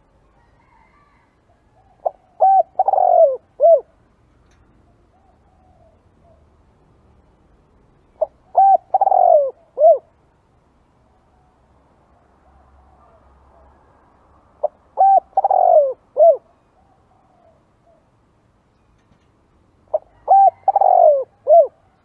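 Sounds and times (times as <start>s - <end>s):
dove cooing: 1.7s - 4.0s, 8.2s - 10.1s, 14.6s - 18.1s, 19.9s - 22.0s.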